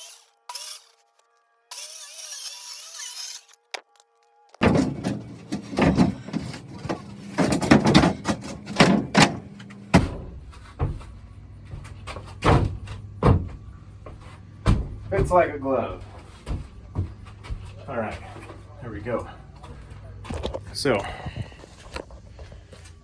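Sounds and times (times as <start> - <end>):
wood knocking and scraping on wood: 3.5 - 10.1.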